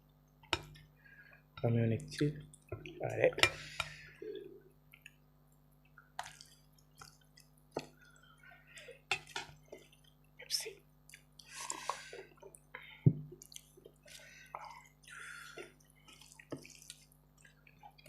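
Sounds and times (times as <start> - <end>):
wet chewing and smacking: 4.9 - 10.4, 11.0 - 18.0.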